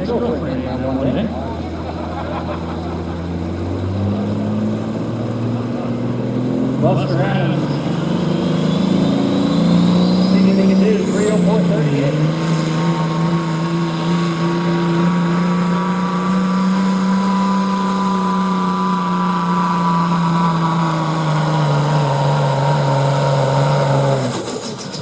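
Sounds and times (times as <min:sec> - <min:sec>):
diesel truck engine under load: 0:00.0 - 0:25.0
steady high whine: 0:06.8 - 0:23.6.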